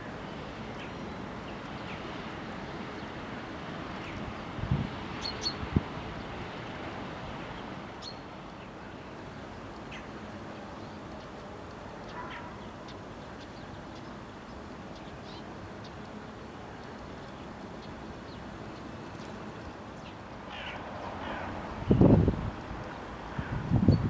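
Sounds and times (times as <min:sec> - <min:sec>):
outdoor background noise: 0:00.0 - 0:24.0
birds chirping: 0:12.0 - 0:23.1.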